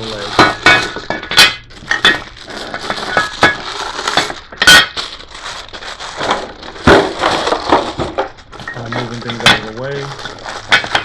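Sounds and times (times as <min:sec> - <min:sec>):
packaging rustling: 0:00.0 - 0:11.0
metal parts knocking and clinking: 0:00.2 - 0:05.0, 0:06.8 - 0:11.0.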